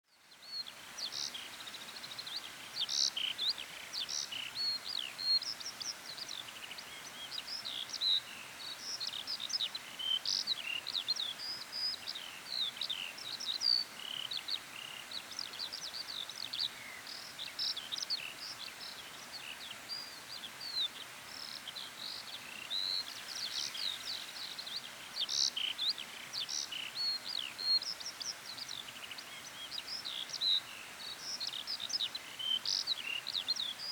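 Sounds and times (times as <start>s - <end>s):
faint background hiss: 0.0s - 33.9s.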